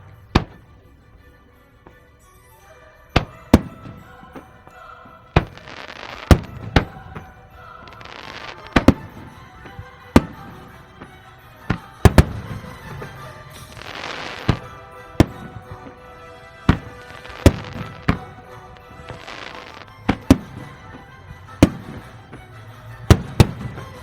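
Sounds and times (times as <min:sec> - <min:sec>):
fireworks bangs: 0:00.0 - 0:24.0
music with sustained tones: 0:00.0 - 0:24.0
hissing crackle: 0:03.2 - 0:21.0.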